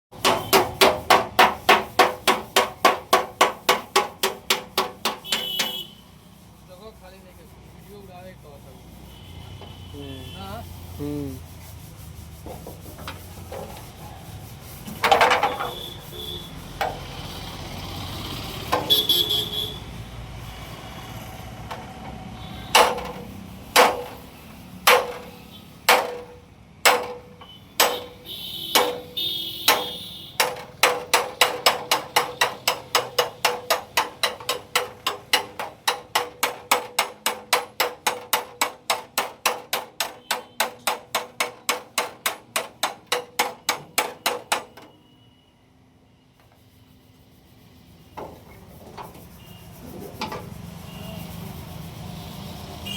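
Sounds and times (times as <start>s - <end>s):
hammer scraping and knocking metal: 0.1s - 5.9s, 12.2s - 45.1s, 48.0s - 50.9s.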